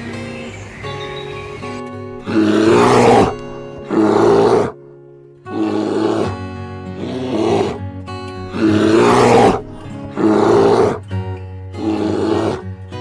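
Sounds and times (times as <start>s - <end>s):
background music: 0.0s - 13.0s
bear rough calls: 2.2s - 4.8s, 5.5s - 6.4s, 7.0s - 7.8s, 8.4s - 11.0s, 11.8s - 12.7s.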